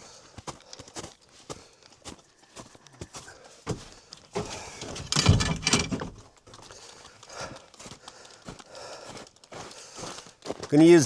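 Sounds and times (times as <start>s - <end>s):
scuffing footsteps: 0.3s - 5.0s, 6.2s - 10.9s
wood knocking and scraping: 3.7s - 6.4s.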